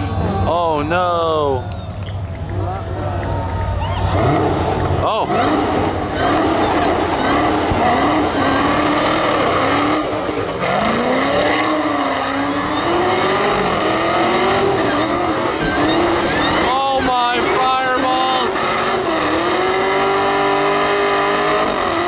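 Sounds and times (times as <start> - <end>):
car engine revving high: 3.4 - 22.0
tyres squealing and hissing: 11.5 - 13.5, 14.6 - 18.6.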